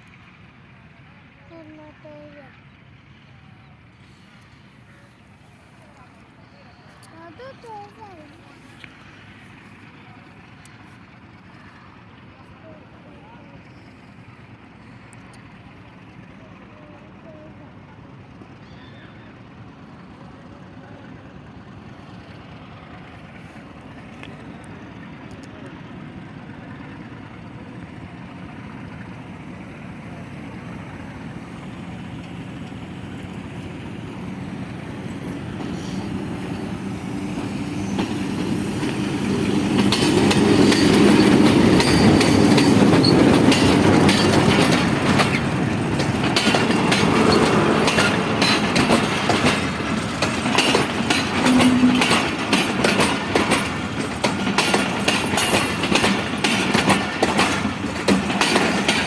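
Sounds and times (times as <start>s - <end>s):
passenger train passing: 0.0s - 59.0s
wheels clattering over rail joints: 31.2s - 59.0s.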